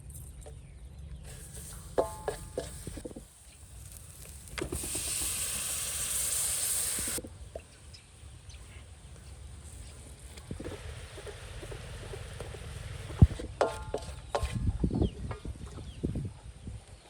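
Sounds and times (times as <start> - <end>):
loud steady hiss: 1.3 - 13.4.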